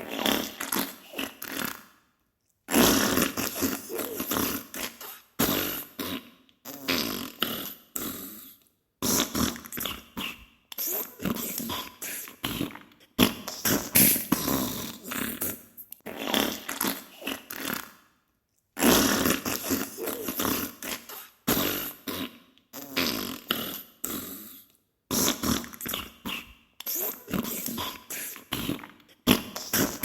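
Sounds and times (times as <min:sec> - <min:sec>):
sputtering fart bursts: 0:02.7 - 0:06.0, 0:12.5 - 0:17.0, 0:18.8 - 0:23.6, 0:28.6 - 0:30.0.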